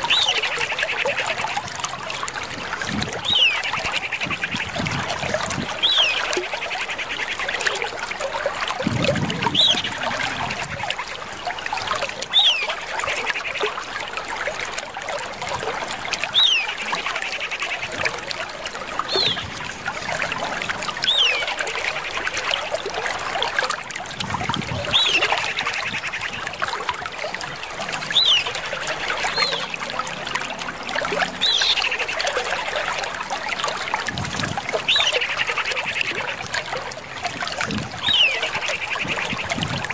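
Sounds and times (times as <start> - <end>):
dense bird chatter: 24.6 - 26.4, 38.0 - 39.9.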